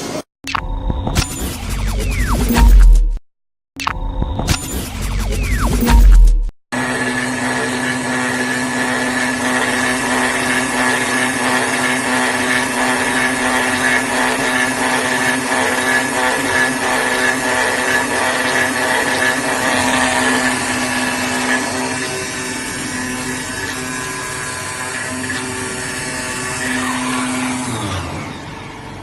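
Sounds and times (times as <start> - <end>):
cutting machine humming and whining: 6.8 - 29.0.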